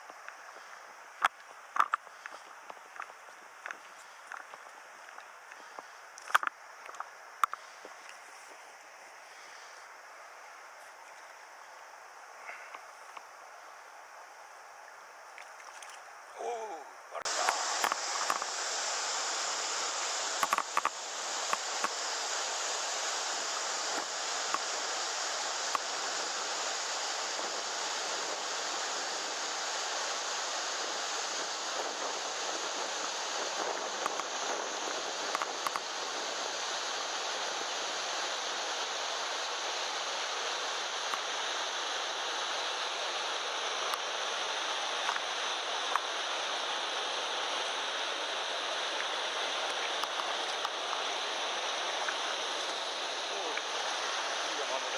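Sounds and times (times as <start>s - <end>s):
faint clicks: 0.0s - 8.6s, 17.4s - 18.5s, 20.3s - 22.0s, 45.0s - 45.3s
river rushing over rocks: 17.2s - 33.8s.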